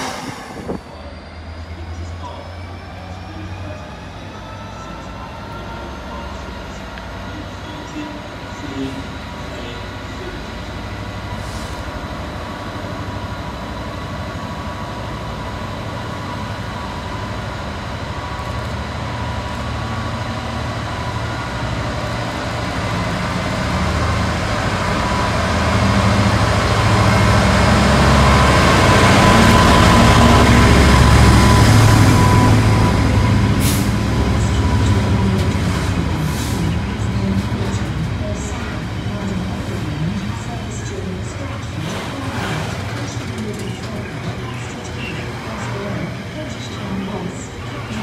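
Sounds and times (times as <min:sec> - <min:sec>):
diesel locomotive engine throbbing: 0:00.0 - 0:48.0
freight wagons rolling: 0:41.8 - 0:44.4.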